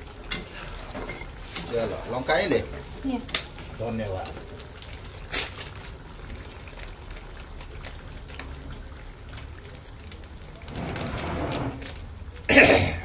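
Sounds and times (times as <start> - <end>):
paste sizzling in hot oil: 0.0 - 9.2.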